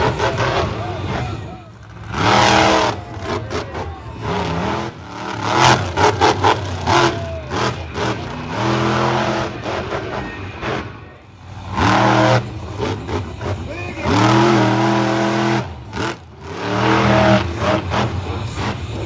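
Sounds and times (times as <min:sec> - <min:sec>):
truck engine revving: 0:00.0 - 0:19.0.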